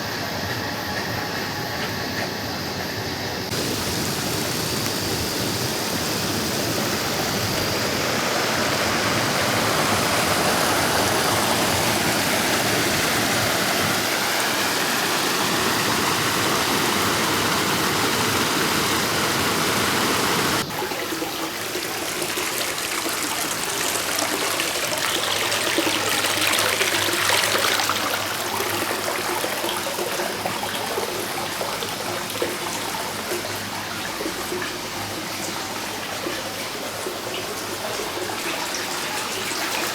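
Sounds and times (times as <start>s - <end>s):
stream rushing over rocks: 3.5s - 20.8s.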